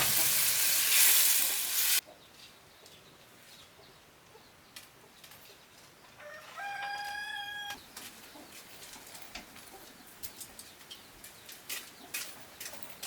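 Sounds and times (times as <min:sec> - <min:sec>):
rooster crowing: 0:06.2 - 0:07.8.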